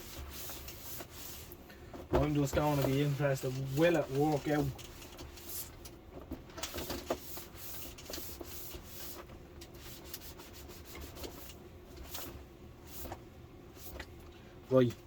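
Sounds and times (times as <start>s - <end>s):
hand rubbing on plastic: 0.0s - 1.6s, 2.2s - 5.8s, 6.6s - 13.2s.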